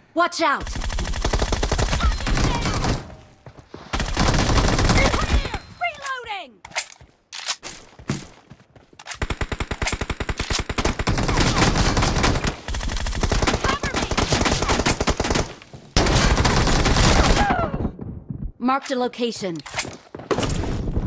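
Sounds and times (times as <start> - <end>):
video game automatic gunfire: 0.6 - 3.1, 4.0 - 5.5, 9.2 - 17.4.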